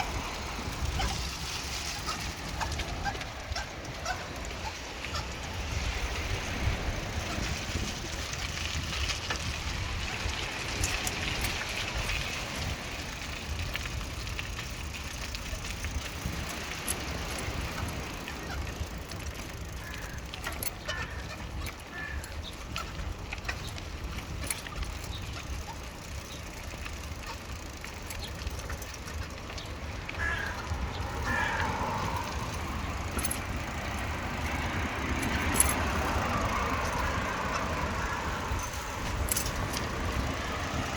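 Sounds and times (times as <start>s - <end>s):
wind on microphone: 0.0s - 14.2s
bicycle tyres on pavement: 0.0s - 40.9s
small clicks and rattles: 0.0s - 40.9s.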